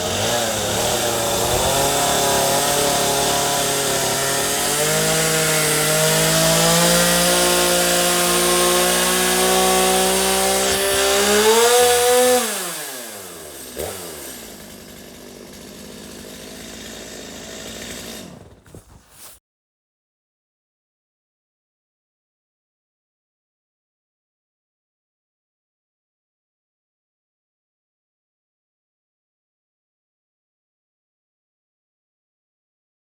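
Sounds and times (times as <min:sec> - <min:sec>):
chainsaw engine running: 0:00.0 - 0:19.4.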